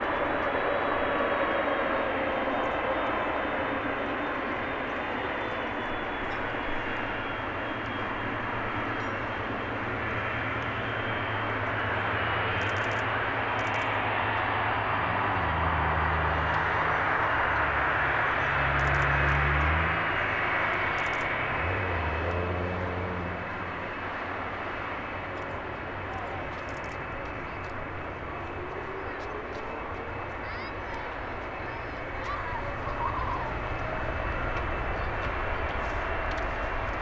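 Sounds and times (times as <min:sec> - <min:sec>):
jet engines roaring past: 0:00.0 - 0:37.0.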